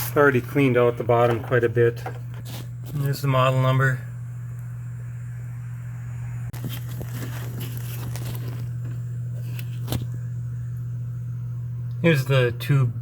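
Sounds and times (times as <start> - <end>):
steady low hum: 0.0 - 13.0
handling clicks and rustles: 6.6 - 10.1.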